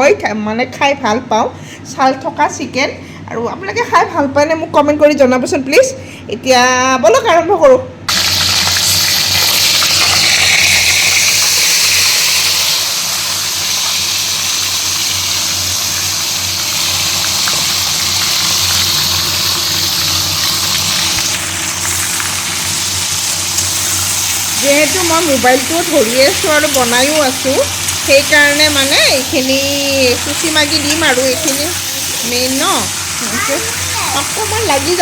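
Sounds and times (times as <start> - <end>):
chicken frying in oil: 8.1 - 35.0.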